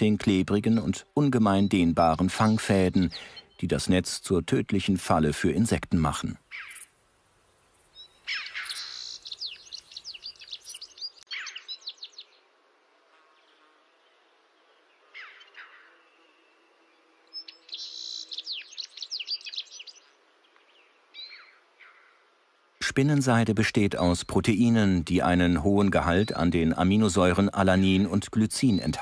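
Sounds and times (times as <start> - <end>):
songbird singing: 0.0 - 12.5, 13.2 - 29.0
single bird calls: 6.5 - 6.9, 8.0 - 12.4, 15.0 - 22.3.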